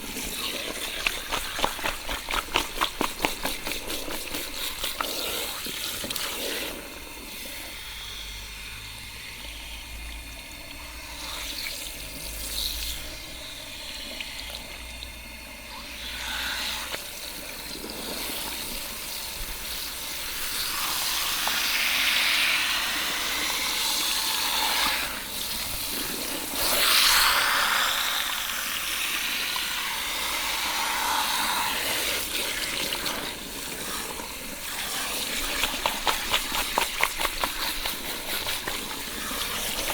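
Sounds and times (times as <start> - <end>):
water splashing over hair: 0.0 - 7.6, 31.5 - 39.9.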